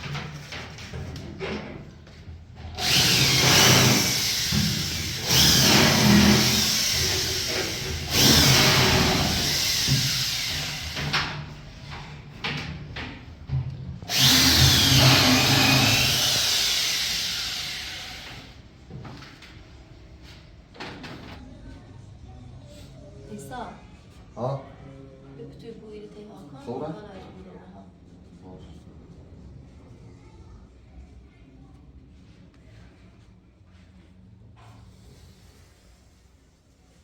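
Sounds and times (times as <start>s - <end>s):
handheld power tool whirring: 2.8s - 11.1s, 14.1s - 18.6s.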